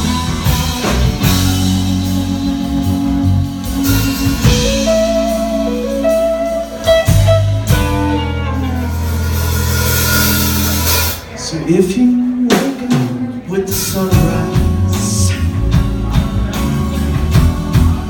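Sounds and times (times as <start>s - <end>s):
electric guitar playing: 0.0s - 11.4s
bass: 0.0s - 18.0s
drums: 0.0s - 18.0s.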